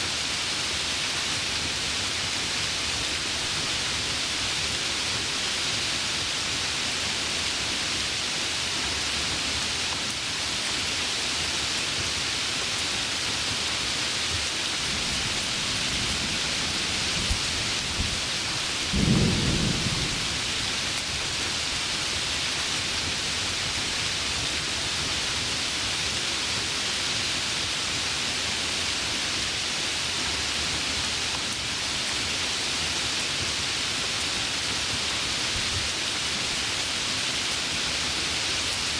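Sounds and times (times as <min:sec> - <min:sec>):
heavy rain hissing: 0:00.0 - 0:38.9
low thunder rumble: 0:15.2 - 0:20.8.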